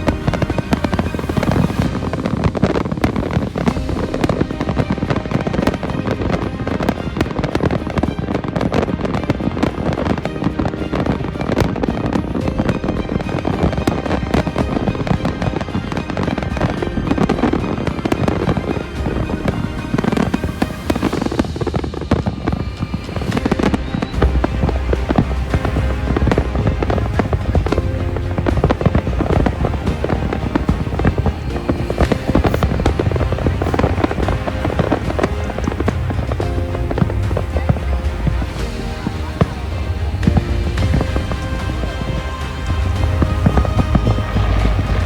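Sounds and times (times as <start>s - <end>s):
fireworks bangs and crackles: 0.0s - 45.0s
music playing: 0.0s - 45.0s
deep booms: 19.0s - 45.0s.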